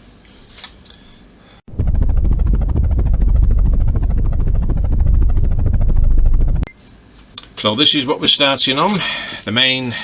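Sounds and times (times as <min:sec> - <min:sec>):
helicopter rotor chopping: 0:01.7 - 0:06.7.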